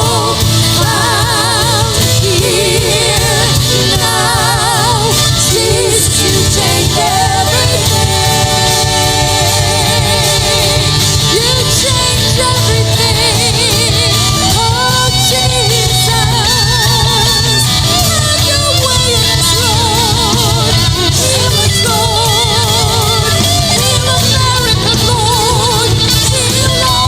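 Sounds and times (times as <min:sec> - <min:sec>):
guitar: 0:00.0 - 0:27.0
person singing: 0:00.0 - 0:27.0
rhythm section: 0:00.0 - 0:27.0.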